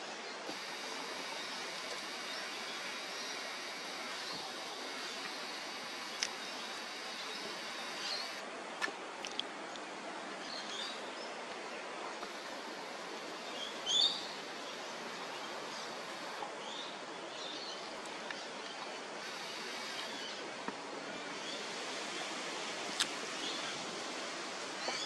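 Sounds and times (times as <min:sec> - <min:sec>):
outdoor background hiss: 0:00.0 - 0:25.0
faint clicks: 0:00.5 - 0:09.9, 0:18.0 - 0:20.8
bird calls: 0:12.2 - 0:20.4.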